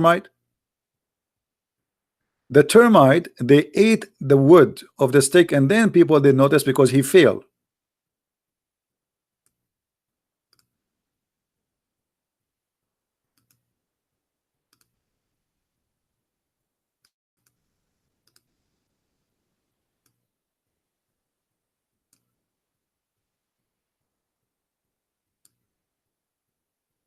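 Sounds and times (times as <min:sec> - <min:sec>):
faint sharp clicks: 0:14.7 - 0:14.9, 0:18.2 - 0:18.5.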